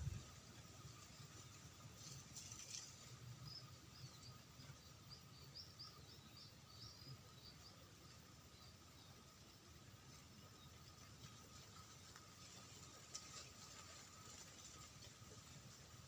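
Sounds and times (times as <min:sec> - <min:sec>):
small bird chirping: 0:03.4 - 0:09.2.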